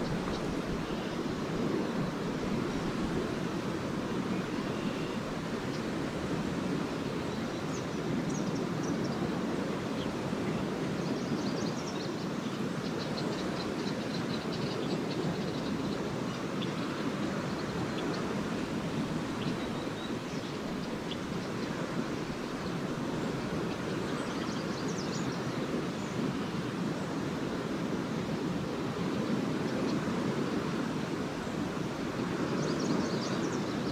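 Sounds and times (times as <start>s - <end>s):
swallows twittering: 0.0s - 3.4s, 12.9s - 25.5s
waves washing onto beach: 0.0s - 33.9s.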